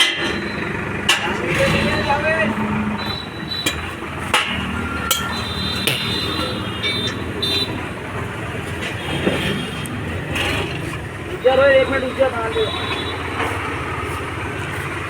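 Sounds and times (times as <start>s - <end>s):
tractor diesel engine idling: 0.0s - 15.0s
metallic knocks and clinks: 4.4s - 7.0s.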